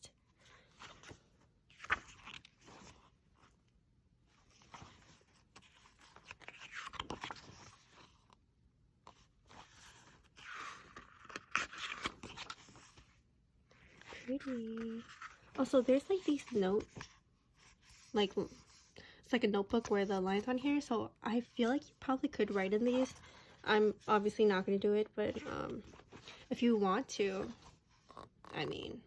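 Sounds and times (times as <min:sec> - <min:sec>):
paper pages rustling: 0:00.5 - 0:03.6, 0:04.3 - 0:08.4, 0:09.1 - 0:18.8, 0:22.3 - 0:28.5.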